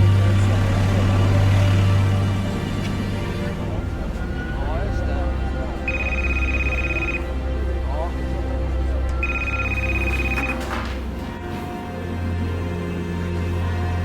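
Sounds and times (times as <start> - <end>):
background music with bass drone: 0.0 - 14.0
telephone ringing: 5.9 - 7.3, 9.2 - 11.0.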